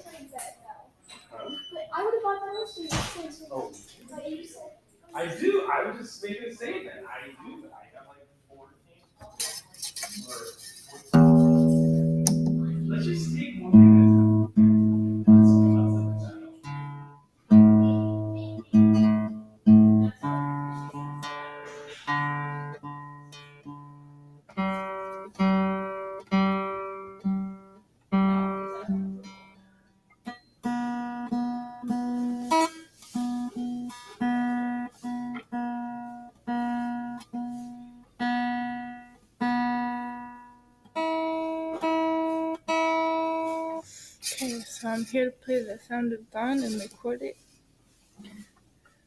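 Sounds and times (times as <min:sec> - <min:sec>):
guitar chords ringing: 0:11.1 - 0:43.8.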